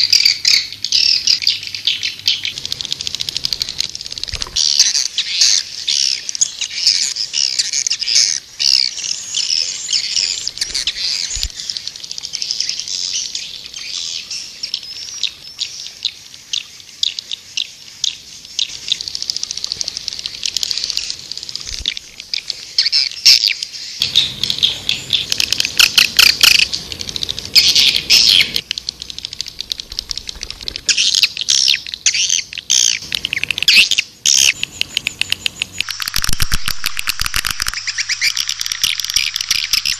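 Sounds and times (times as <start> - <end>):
swiftlets chirping: 18.6 - 39.9.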